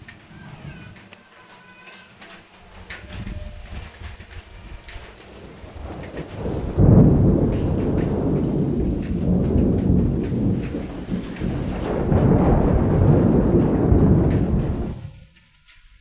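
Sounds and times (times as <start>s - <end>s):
rain falling: 0.0s - 16.0s
thunder rumbling: 2.6s - 16.0s.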